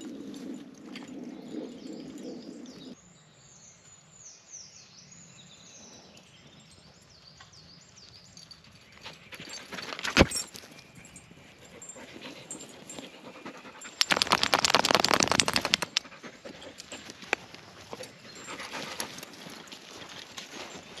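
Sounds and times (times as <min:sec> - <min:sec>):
dog panting: 0:11.6 - 0:14.1, 0:15.8 - 0:20.8
rapid clicking and rustling: 0:13.8 - 0:18.0.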